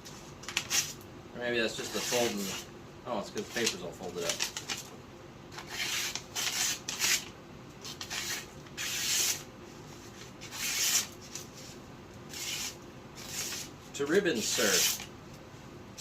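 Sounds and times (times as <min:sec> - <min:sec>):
knife slicing through paper: 0:01.8 - 0:02.7, 0:05.6 - 0:09.4, 0:10.4 - 0:11.4, 0:12.3 - 0:13.7, 0:14.4 - 0:15.1.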